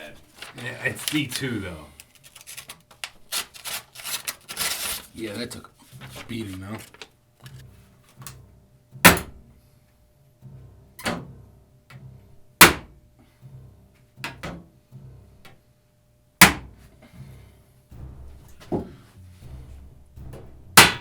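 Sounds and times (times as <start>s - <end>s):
knife blade being hammered: 12.6s - 12.9s, 16.4s - 16.7s, 20.8s - 21.0s.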